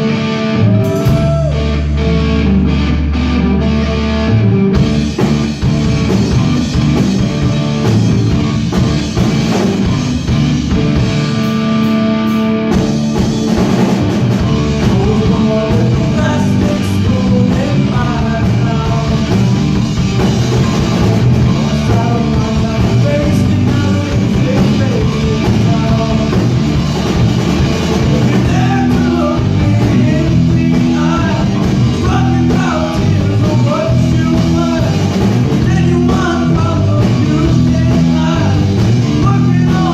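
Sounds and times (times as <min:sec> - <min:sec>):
drum kit playing: 0:00.0 - 0:39.9
electric guitar: 0:00.0 - 0:39.9
person singing: 0:14.4 - 0:19.6, 0:21.4 - 0:26.7, 0:28.0 - 0:39.9.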